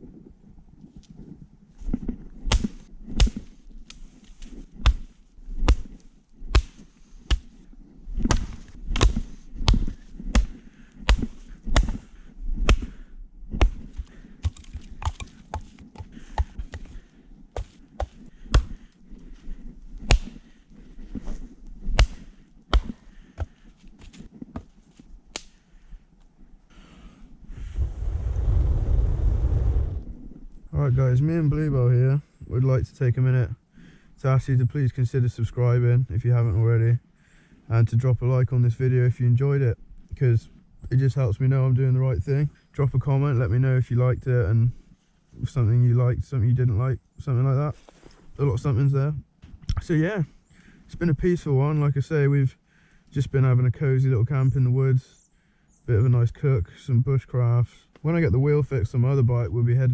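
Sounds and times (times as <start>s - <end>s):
sharp knocks and cracks: 2.4s - 4.0s, 4.8s - 7.5s, 8.2s - 12.0s, 12.6s - 12.9s, 13.6s - 16.9s, 20.0s - 20.4s, 21.9s - 24.7s
dull thumps: 8.2s - 18.9s, 21.9s - 24.8s.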